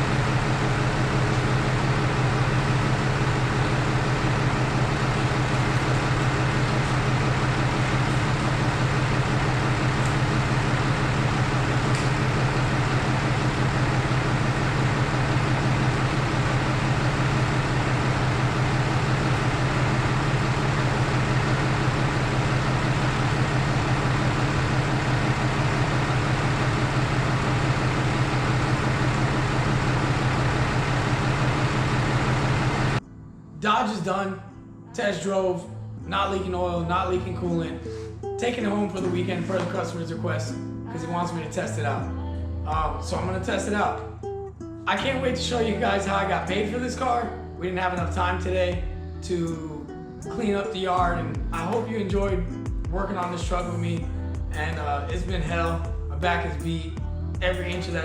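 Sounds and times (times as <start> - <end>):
diesel engine humming: 0.0 - 33.0, 44.9 - 52.5, 53.2 - 58.0.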